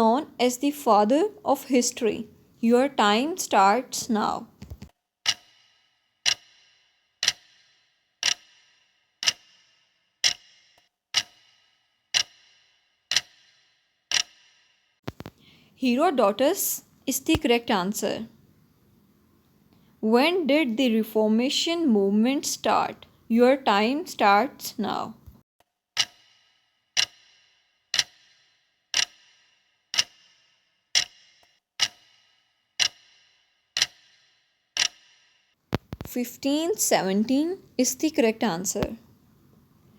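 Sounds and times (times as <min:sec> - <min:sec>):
timer ticking: 0:00.0 - 0:14.5, 0:15.9 - 0:18.2, 0:26.0 - 0:39.0.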